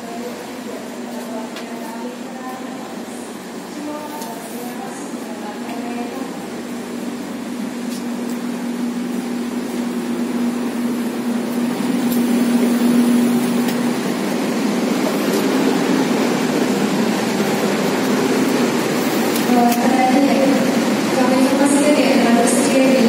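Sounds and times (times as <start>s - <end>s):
passenger train running noise: 0.0s - 23.0s
low hum: 5.2s - 23.0s.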